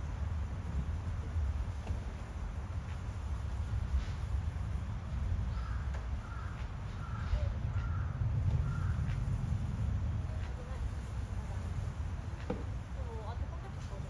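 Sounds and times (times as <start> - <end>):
steady low rumble: 0.0 - 14.0
bird calling: 5.5 - 9.0.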